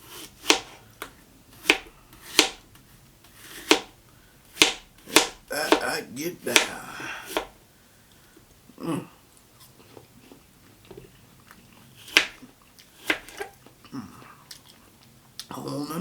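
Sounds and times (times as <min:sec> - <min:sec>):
chewing apple: 0:09.6 - 0:15.6.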